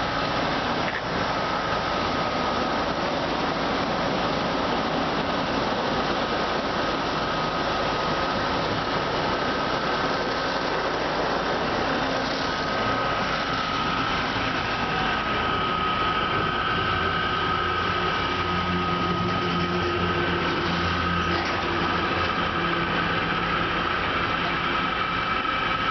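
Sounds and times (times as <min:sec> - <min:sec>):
car wash machine running: 0:00.0 - 0:25.9
constant whine: 0:00.0 - 0:25.9.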